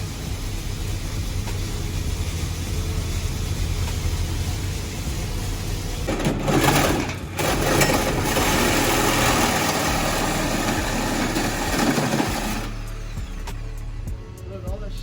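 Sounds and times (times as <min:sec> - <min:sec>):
car engine revving hard: 0:06.4 - 0:13.9.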